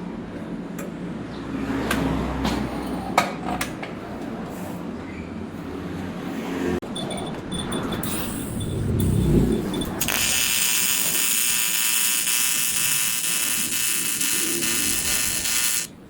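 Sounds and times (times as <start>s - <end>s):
low workshop hum: 8.2s - 16.0s.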